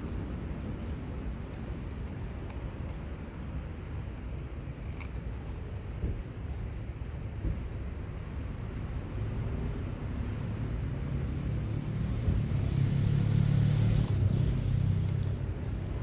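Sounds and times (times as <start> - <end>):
passing vehicle engine rumble: 8.6 - 16.0.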